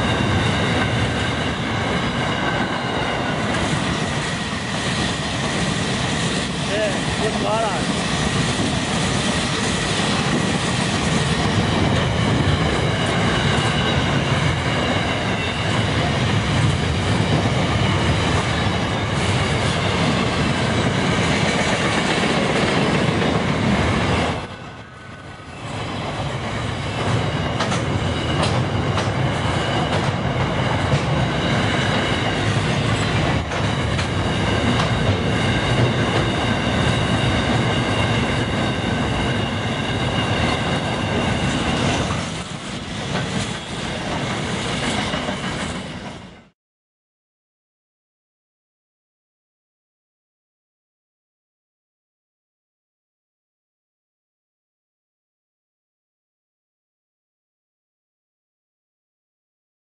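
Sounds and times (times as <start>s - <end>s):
clickety-clack over rail joints: 0.0s - 24.5s, 25.7s - 46.5s
freight train wheels rumbling on rail: 0.0s - 46.5s
high wheel squeal: 25.4s - 46.0s.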